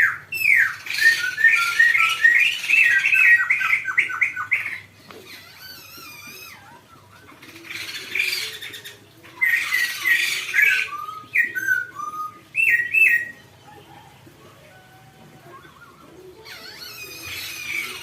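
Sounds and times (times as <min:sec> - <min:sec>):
harsh scratchy bird calls: 0:00.0 - 0:14.1, 0:15.4 - 0:18.0
bird whistling notes: 0:07.9 - 0:13.4.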